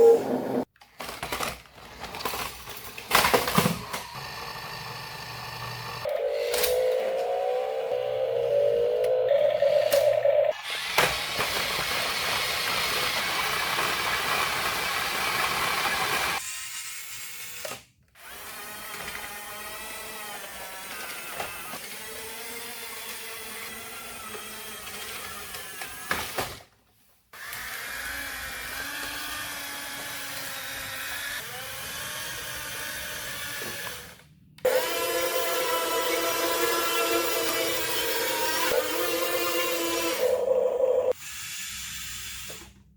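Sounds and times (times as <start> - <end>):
rc car motor whining: 3.5 - 16.4, 27.4 - 42.8.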